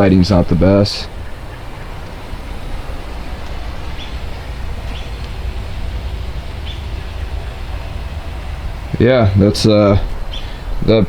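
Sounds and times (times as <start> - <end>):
low rumbling background noise: 0.0 - 11.0
faint bird chirps: 1.0 - 9.0, 10.0 - 10.9.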